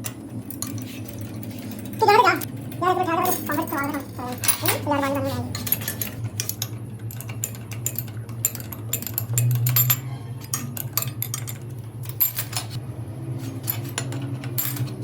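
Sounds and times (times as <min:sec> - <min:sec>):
metal tools clinking: 0:00.0 - 0:12.8, 0:13.4 - 0:15.0.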